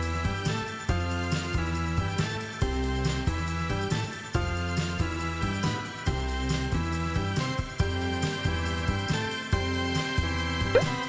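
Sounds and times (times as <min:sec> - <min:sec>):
cheerful children's music: 0:00.0 - 0:11.0
jingling bells: 0:00.0 - 0:11.0.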